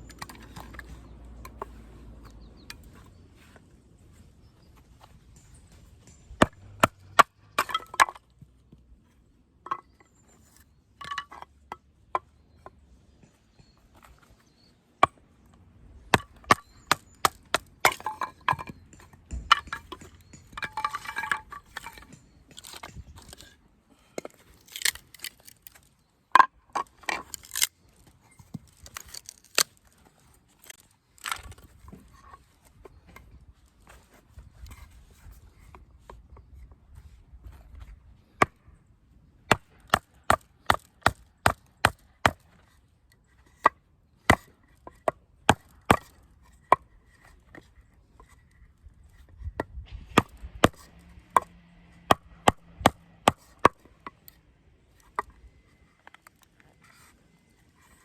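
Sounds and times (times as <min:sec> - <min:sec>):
wood cracking: 0:24.4 - 0:32.0.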